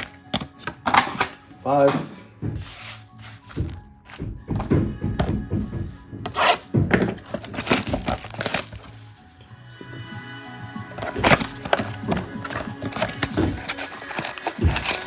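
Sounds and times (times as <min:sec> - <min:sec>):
card packs being torn open: 0:00.0 - 0:02.0, 0:06.3 - 0:09.1, 0:11.0 - 0:15.0
cards rustling and knocking on table: 0:00.0 - 0:09.0, 0:11.0 - 0:15.0
background music: 0:00.0 - 0:15.0.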